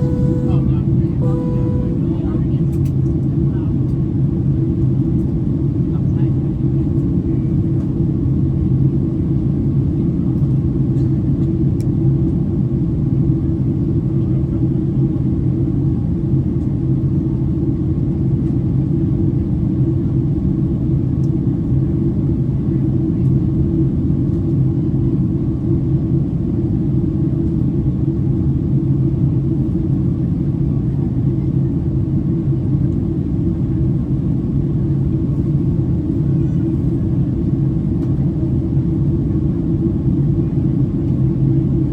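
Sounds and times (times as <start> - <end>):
airplane cabin roar: 0.0 - 5.0, 24.2 - 41.9.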